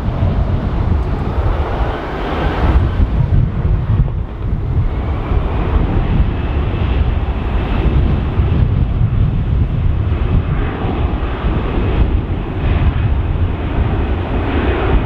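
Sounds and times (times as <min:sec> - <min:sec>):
jet engines rumbling: 0:00.0 - 0:15.0
faint high whine: 0:00.9 - 0:05.1.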